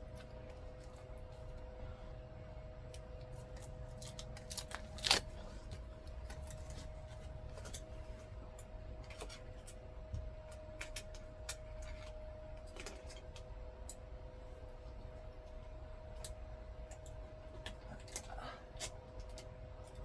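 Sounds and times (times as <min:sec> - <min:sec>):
steady hum: 0:00.0 - 0:20.0
scissors snipping tape: 0:02.9 - 0:06.9
tape crinkling and clicking: 0:02.9 - 0:14.0, 0:14.7 - 0:20.0.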